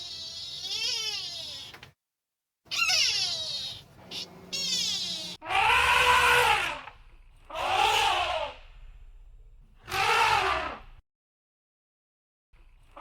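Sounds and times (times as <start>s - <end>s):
cat meowing: 0.0s - 1.8s, 2.7s - 5.8s.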